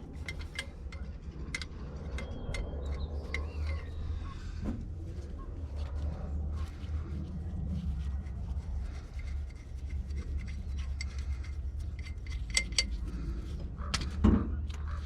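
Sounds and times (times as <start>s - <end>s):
wrench clinking against metal: 0.0s - 3.9s, 10.8s - 13.1s
steady low rumble: 0.0s - 15.0s.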